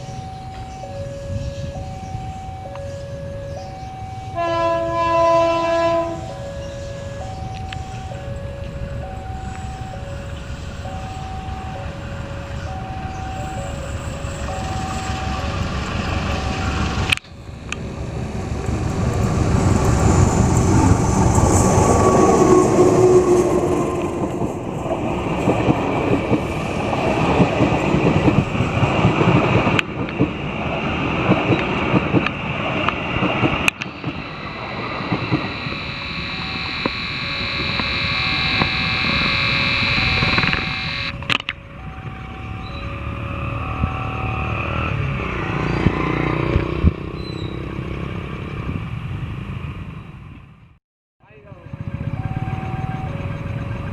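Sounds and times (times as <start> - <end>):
level crossing two-tone alarm: 0.0 - 17.6, 33.6 - 44.9, 51.5 - 53.9
train wheels rumbling on rails: 0.0 - 35.5
passenger train passing: 0.0 - 46.8, 51.3 - 53.9.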